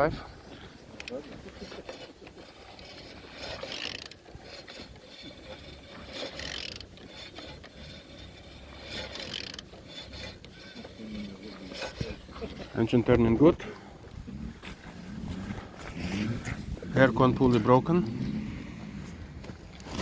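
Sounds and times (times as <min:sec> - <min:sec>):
gear and mechanism noise: 0:00.0 - 0:20.0
ratchet wrench clicking: 0:02.8 - 0:05.3, 0:06.1 - 0:10.7.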